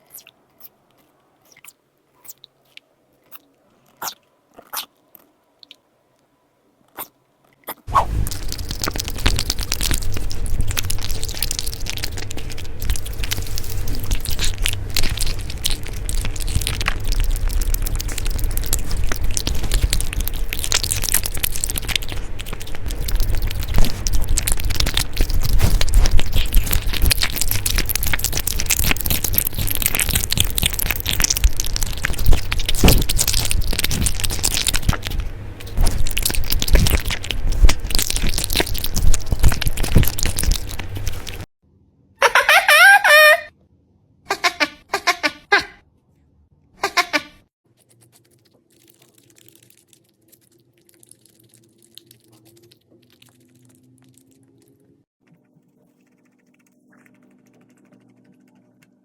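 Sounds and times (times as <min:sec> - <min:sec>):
animal crunching food: 0:06.9 - 0:41.5, 0:46.8 - 0:59.0.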